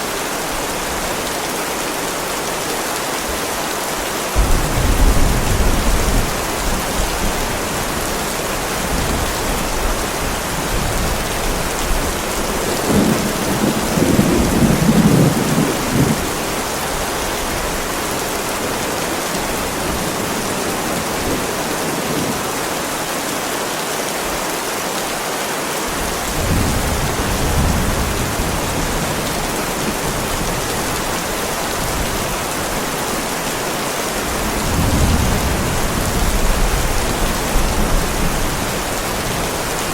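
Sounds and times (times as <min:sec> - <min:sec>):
heavy rain on a driveway: 0:00.0 - 0:39.9
thunder rumbling: 0:04.4 - 0:17.8, 0:26.0 - 0:32.8, 0:34.3 - 0:39.9.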